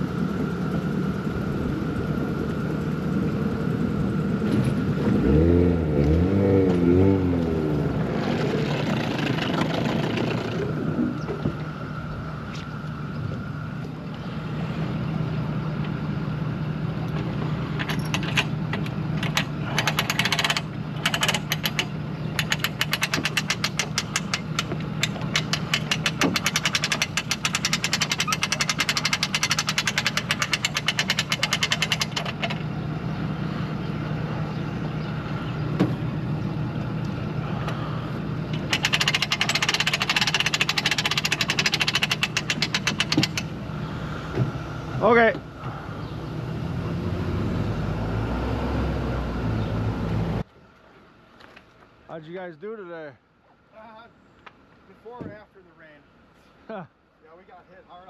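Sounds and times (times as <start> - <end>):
engine running: 0.0 - 52.0
rapid regular ticking: 19.3 - 32.4, 38.6 - 43.6.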